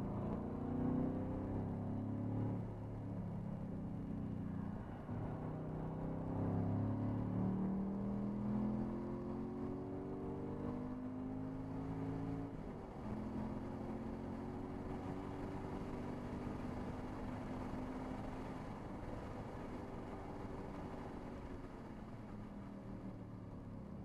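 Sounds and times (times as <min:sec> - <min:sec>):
car engine accelerating hard: 0:05.8 - 0:19.8.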